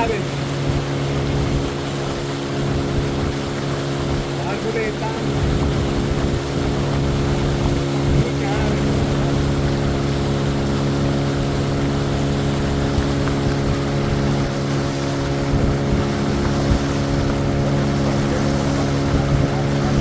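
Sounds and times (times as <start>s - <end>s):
engine droning steadily: 0.0s - 20.0s.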